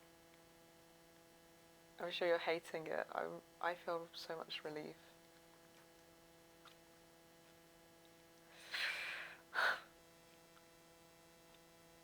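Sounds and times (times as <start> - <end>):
person breathing: 8.5 - 9.9.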